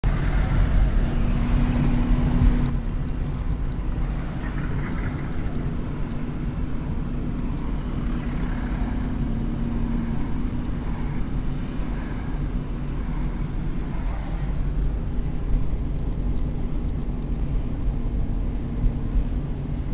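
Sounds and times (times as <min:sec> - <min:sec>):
car engine and road rumble: 0:00.0 - 0:19.9
light clicks: 0:15.6 - 0:17.5.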